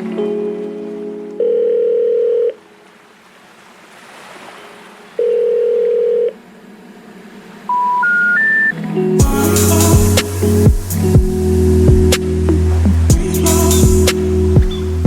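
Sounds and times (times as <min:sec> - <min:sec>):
telephone ringback tone: 0:01.4 - 0:02.6, 0:05.2 - 0:06.4.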